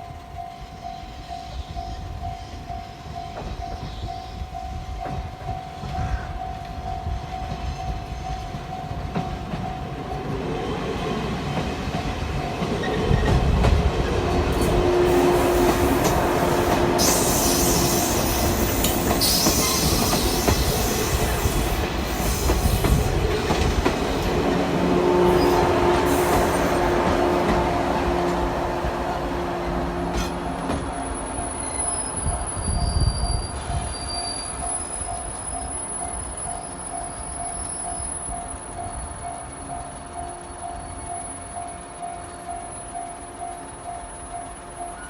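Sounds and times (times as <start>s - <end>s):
electric train running: 6.4s - 45.0s
high hiss: 14.6s - 23.3s.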